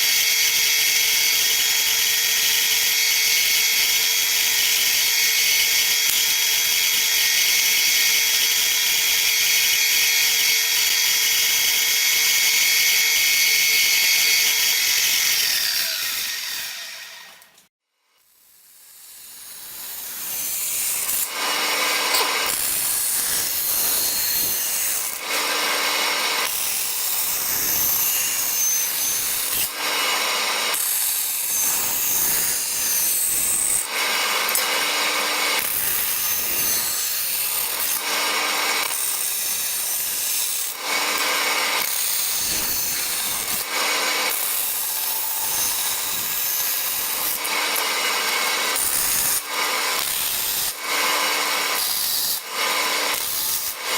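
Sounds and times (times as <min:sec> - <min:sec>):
drilling metal: 0:00.0 - 0:17.6, 0:19.8 - 0:53.9
filing metal: 0:00.0 - 0:17.6, 0:18.5 - 0:53.9
bandsaw cutting metal: 0:00.0 - 0:17.7, 0:18.3 - 0:53.9.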